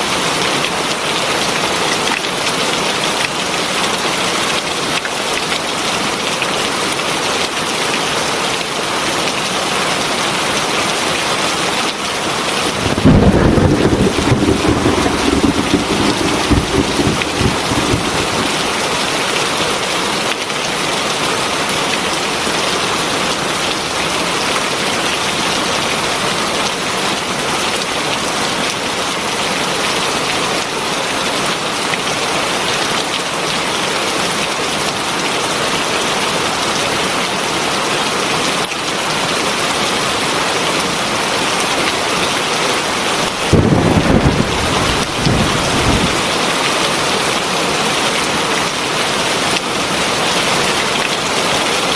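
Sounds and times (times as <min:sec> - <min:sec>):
heavy rain pouring: 0:00.1 - 0:51.9
low rumble of thunder: 0:12.6 - 0:19.6, 0:43.2 - 0:46.5.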